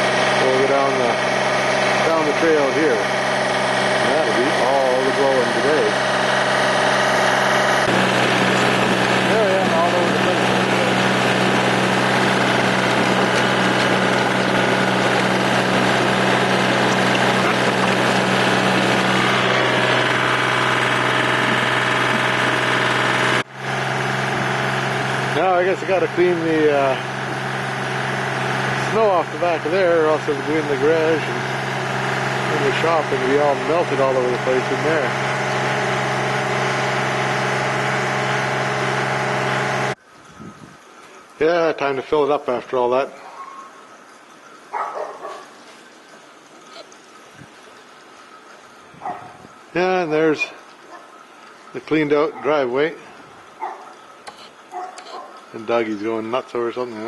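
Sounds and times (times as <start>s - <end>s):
snowblower engine hum: 0.0s - 40.0s.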